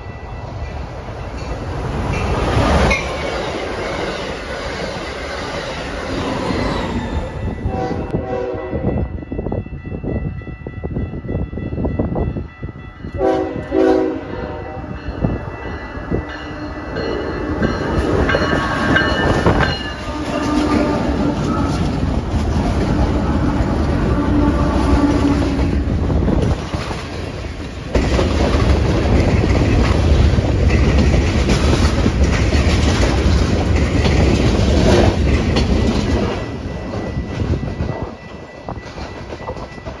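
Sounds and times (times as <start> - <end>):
diesel locomotive engine drone: 0.0 - 40.0
train wheels clickety-clack: 17.2 - 40.0.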